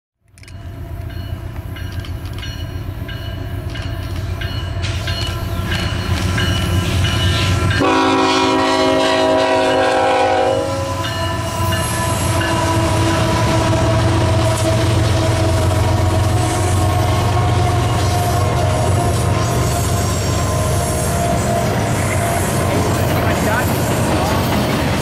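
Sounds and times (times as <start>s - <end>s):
locomotive engine rumble: 0.4s - 25.0s
train air horn blast: 7.8s - 18.9s
wheels clattering on rails: 11.7s - 25.0s.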